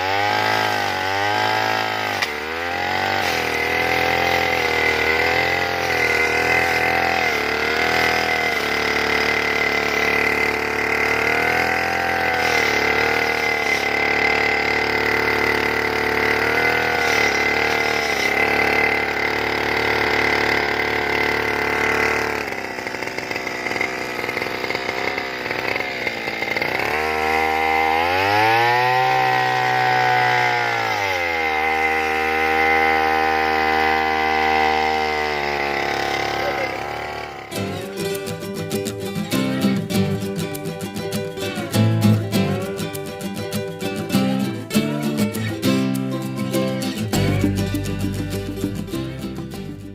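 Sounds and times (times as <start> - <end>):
brush cutter engine revving: 0.0 - 49.9.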